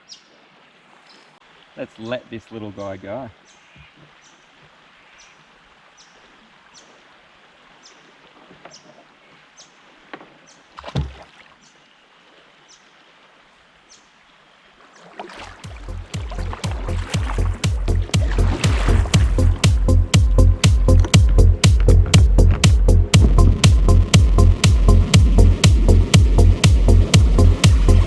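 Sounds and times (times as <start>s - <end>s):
river ambience: 0.0s - 28.0s
knock or splash: 10.1s - 11.5s, 15.0s - 19.9s
music with heavy beat: 15.7s - 28.0s.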